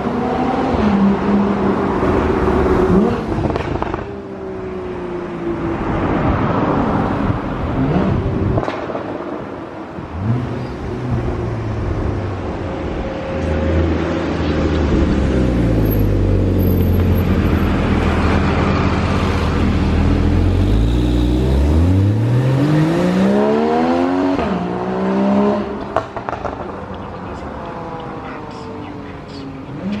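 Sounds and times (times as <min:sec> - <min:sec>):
car engine accelerating: 0:13.4 - 0:28.9.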